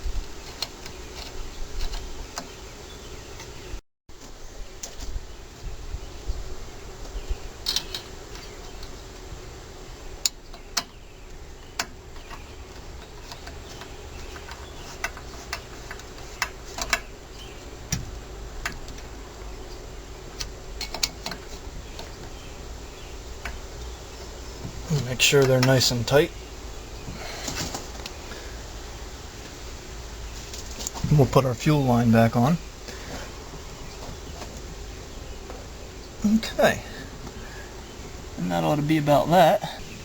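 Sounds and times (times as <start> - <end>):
background hum: 0.0 - 40.0
insects buzzing: 0.0 - 40.0
tools and engine parts clicking: 7.6 - 8.9, 11.6 - 17.1, 20.4 - 22.2.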